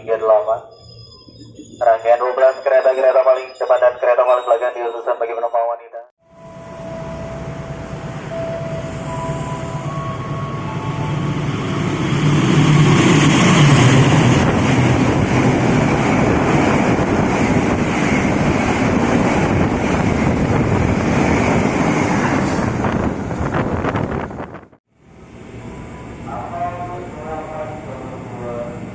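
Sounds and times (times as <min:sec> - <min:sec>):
train wheels rumbling on rails: 0:06.6 - 0:28.9.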